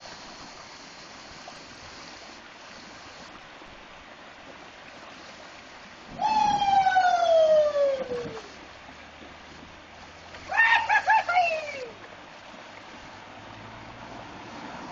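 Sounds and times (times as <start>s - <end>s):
river water rushing: 0.1s - 14.9s
long falling cry: 6.2s - 8.5s, 10.5s - 12.0s.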